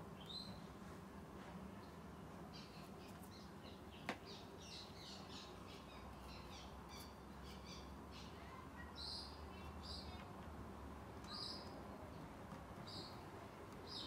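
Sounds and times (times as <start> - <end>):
small birds chirping: 0.0 - 0.8, 1.7 - 14.0.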